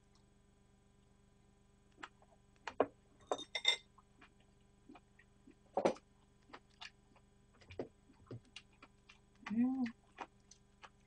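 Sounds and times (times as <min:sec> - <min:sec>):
chewing: 0:04.2 - 0:05.6, 0:06.2 - 0:11.0
wet mouth clicks: 0:08.1 - 0:11.0.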